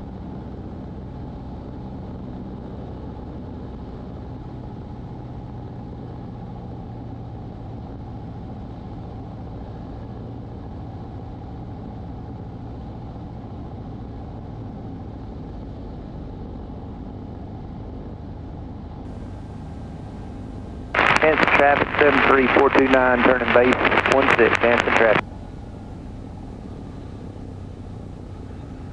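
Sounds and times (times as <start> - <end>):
airplane engine and propeller droning: 0.0 - 28.9
faint hiss: 19.1 - 25.2.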